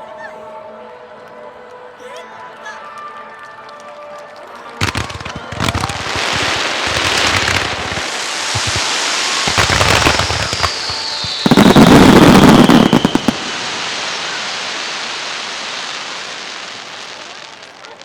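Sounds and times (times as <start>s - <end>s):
lingering rumble: 4.8s - 14.7s
firework shell bursts: 4.8s - 15.3s
falling firework whistle: 4.8s - 18.0s
fireworks crackling: 4.8s - 18.0s.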